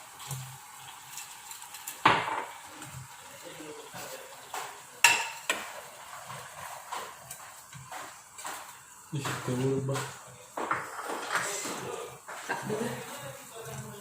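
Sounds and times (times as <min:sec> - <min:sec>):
food sizzling: 0:00.0 - 0:14.0
utensil clinking against a pan: 0:04.0 - 0:11.5.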